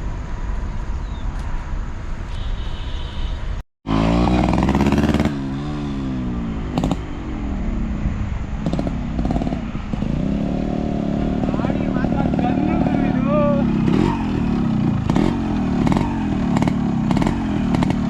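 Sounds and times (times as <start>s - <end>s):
motorcycle engine revving: 3.8s - 18.0s.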